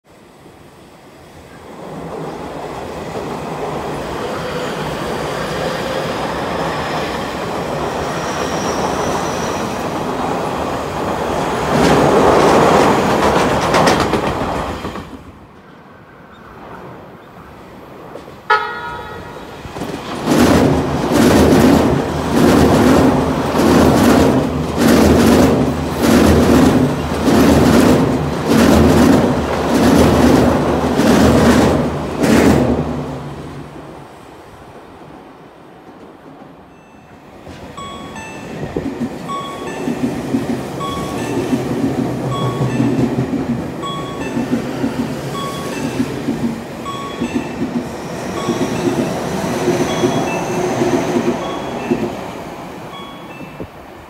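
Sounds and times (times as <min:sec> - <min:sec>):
electric train rumble and whine: 0:00.1 - 0:54.0
wheels clattering over rail joints: 0:11.0 - 0:15.3
train horn toot: 0:18.5 - 0:19.6.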